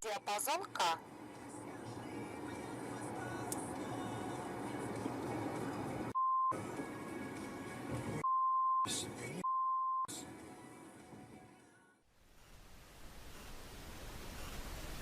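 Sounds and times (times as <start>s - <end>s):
background music: 0.0s - 8.2s, 10.1s - 12.0s
censor bleeps: 6.2s - 6.6s, 8.2s - 10.1s.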